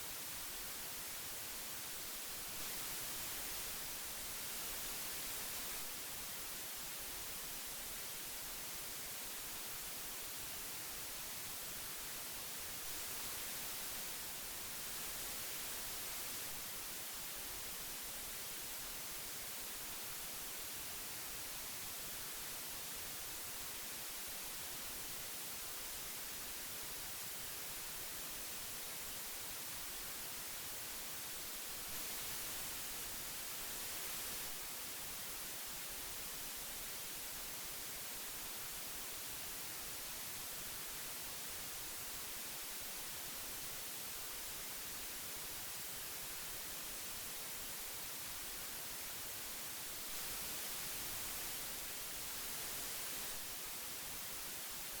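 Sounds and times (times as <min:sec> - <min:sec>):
magnetic tape hiss: 0:00.0 - 0:55.0.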